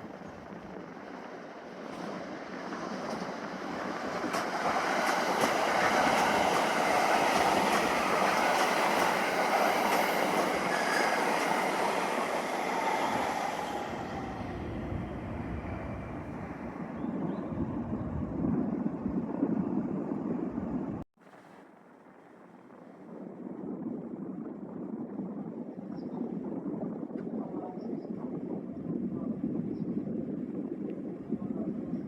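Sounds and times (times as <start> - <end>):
train running past: 0.0 - 17.0
wheels clicking over rail joints: 1.8 - 12.4.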